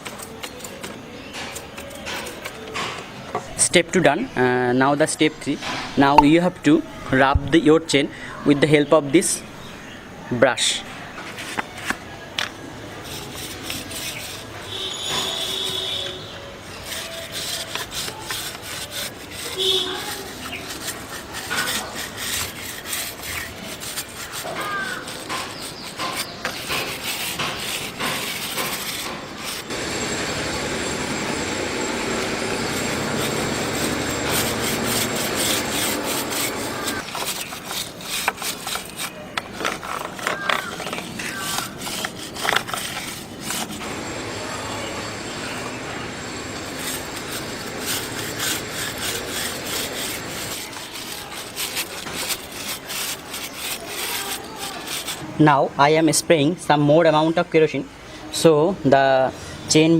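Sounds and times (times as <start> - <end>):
brush scrubbing motorcycle chain: 0.0 - 2.7, 10.5 - 29.9, 30.7 - 56.2.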